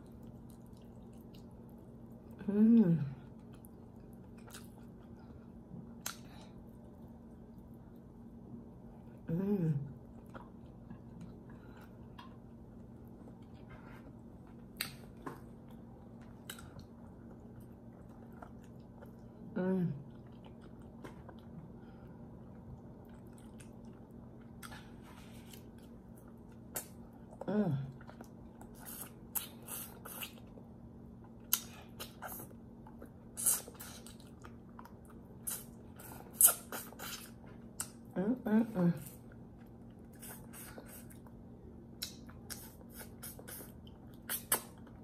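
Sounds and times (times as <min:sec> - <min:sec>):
person chewing food: 0:00.0 - 0:02.4, 0:03.2 - 0:08.4, 0:09.9 - 0:38.1, 0:39.1 - 0:45.0
wet mouth clicks: 0:42.0 - 0:44.9.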